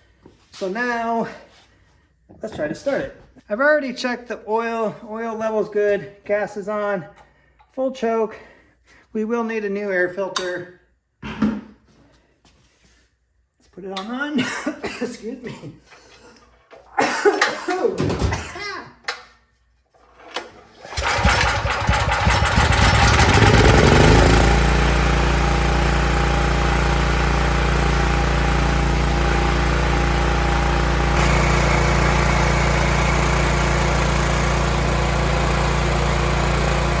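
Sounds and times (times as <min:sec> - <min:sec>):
generator engine pull-started: 0:20.1 - 0:37.0.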